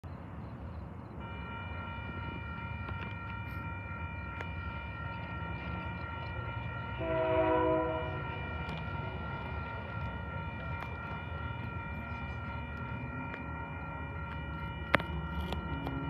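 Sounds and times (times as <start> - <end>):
freight train rumbling: 0.0 - 16.0
railroad crossing bell ringing: 0.0 - 16.0
train horn blast: 1.2 - 16.0.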